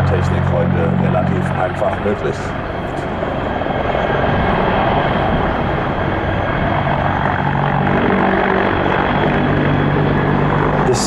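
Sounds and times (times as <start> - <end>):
helicopter rotor and turbine noise: 0.0 - 11.0
low hum: 0.0 - 11.0.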